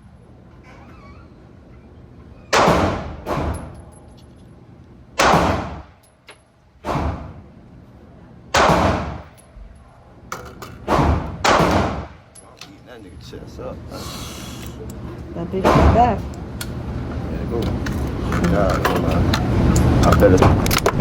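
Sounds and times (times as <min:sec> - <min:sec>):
handgun shots with echo: 0:02.5 - 0:03.7, 0:05.2 - 0:05.9, 0:08.5 - 0:09.3, 0:10.9 - 0:12.2.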